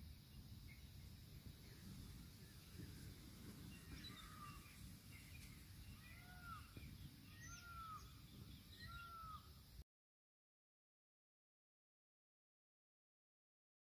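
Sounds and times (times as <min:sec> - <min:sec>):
bird whistling faintly: 0:03.7 - 0:09.5.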